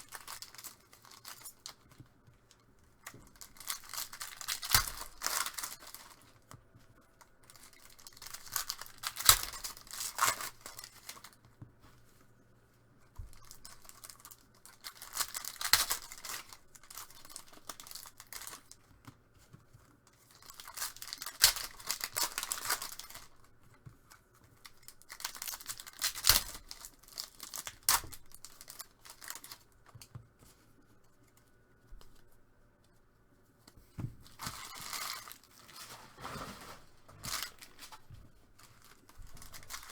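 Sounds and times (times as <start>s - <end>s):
card pack wrappers tearing: 0.0s - 1.8s, 3.1s - 6.5s, 7.2s - 11.4s, 13.2s - 18.8s, 20.3s - 23.4s, 24.7s - 29.7s, 34.3s - 39.9s
quiet handling: 28.2s - 39.9s.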